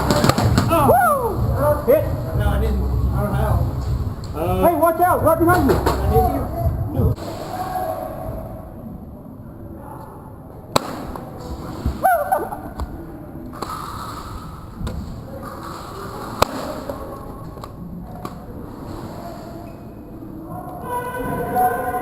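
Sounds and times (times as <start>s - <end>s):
airsoft gunfire: 0.0s - 0.7s, 10.8s - 11.4s.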